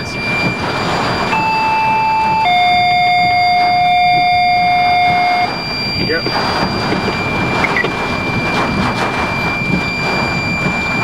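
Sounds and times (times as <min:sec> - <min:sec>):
vehicle noise: 0:00.0 - 0:11.0.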